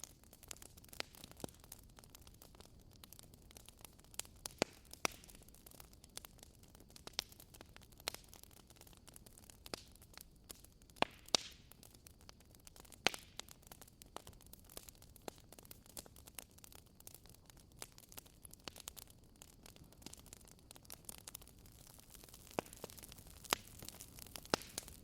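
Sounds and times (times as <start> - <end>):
fire snapping and popping: 0.0 - 25.0
low fire hiss: 0.0 - 25.0.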